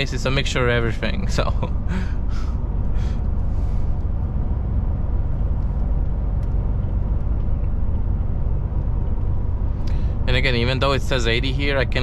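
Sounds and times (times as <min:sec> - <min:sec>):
truck diesel engine drone: 0:00.0 - 0:12.0.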